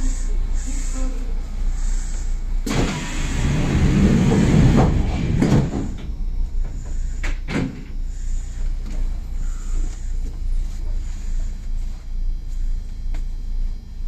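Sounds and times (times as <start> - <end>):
low hum of standing train: 0.0 - 14.0
train doors sliding shut: 2.6 - 6.1.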